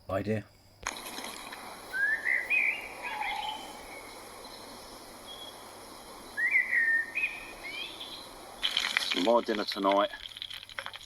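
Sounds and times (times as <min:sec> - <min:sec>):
faint woodland hiss: 0:00.0 - 0:10.4
songbird whistling: 0:01.8 - 0:08.6.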